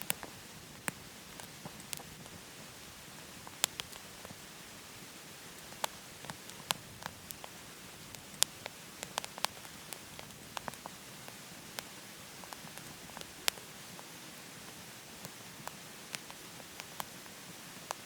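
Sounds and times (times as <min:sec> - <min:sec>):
wood fire crackling in a stove: 0:00.0 - 0:18.0.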